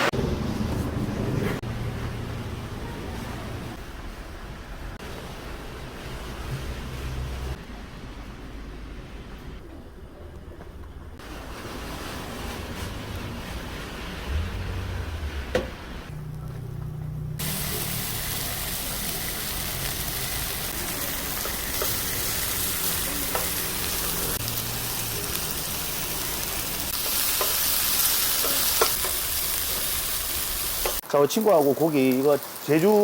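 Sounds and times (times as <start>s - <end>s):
low hum: 13.3s - 17.5s
meat sizzling on a grill: 17.4s - 33.0s.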